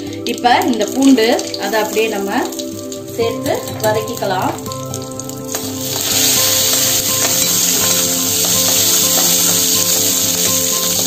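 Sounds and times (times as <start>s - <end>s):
spices sizzling in hot oil: 0.0s - 11.0s
spatula scraping a pan: 5.5s - 11.0s.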